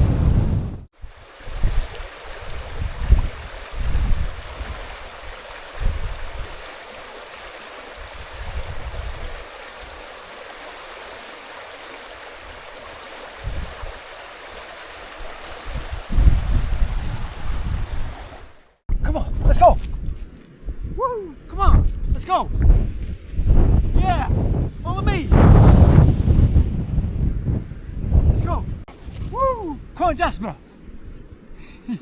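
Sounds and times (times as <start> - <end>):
wind buffeting microphone: 0.0 - 6.7, 7.9 - 10.0, 12.4 - 14.1, 15.1 - 31.6
river water rushing: 1.0 - 18.8.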